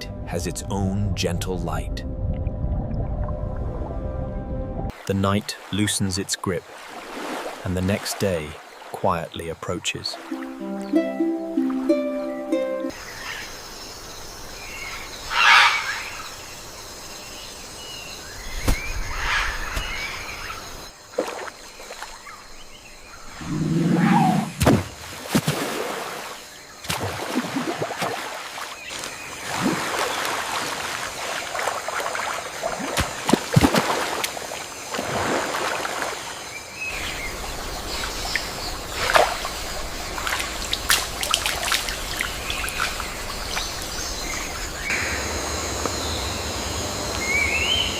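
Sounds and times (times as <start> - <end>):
rushing water: 4.9 - 13.3, 24.4 - 45.0
bird calls and chirps: 41.8 - 45.3.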